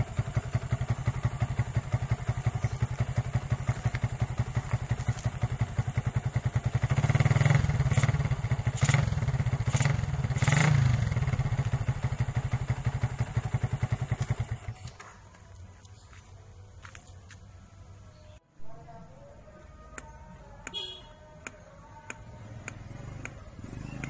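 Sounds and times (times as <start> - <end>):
motorcycle engine idling: 0.0 - 24.0
engine throttle revs: 6.6 - 14.9, 22.3 - 24.0.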